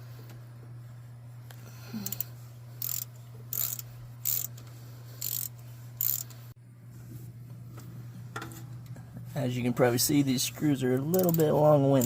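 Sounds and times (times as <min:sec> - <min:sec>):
steady low hum: 0:00.0 - 0:12.0
ratchet wrench clicking: 0:02.0 - 0:06.4, 0:11.0 - 0:12.0.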